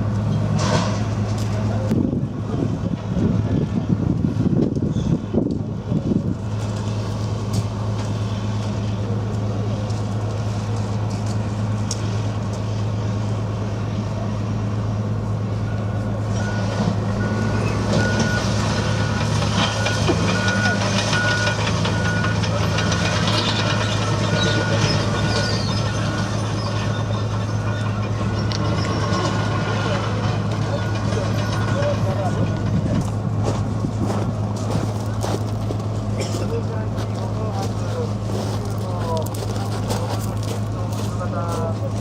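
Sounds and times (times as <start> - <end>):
vehicle engine droning: 0.0 - 42.0.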